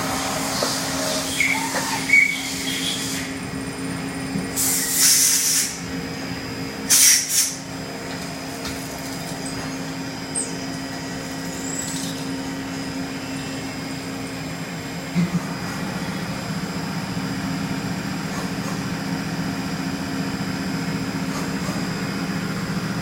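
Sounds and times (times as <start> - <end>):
machining center humming: 0.0 - 23.0
air hiss bursts: 4.6 - 5.8, 6.9 - 7.6.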